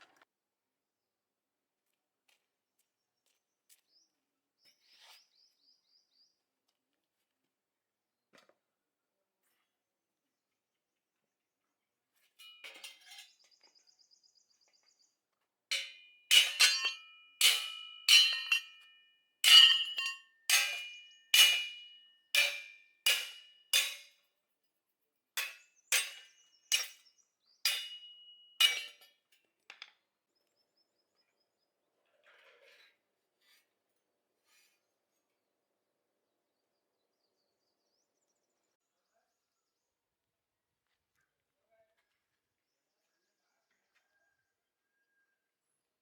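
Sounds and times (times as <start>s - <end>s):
light metal clinks: 15.7s - 21.8s.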